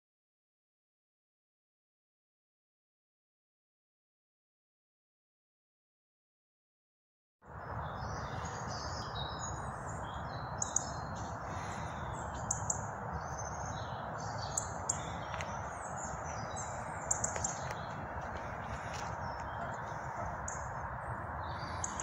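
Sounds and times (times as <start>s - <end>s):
rushing background noise: 7.5s - 22.0s
small birds chirping: 7.5s - 22.0s.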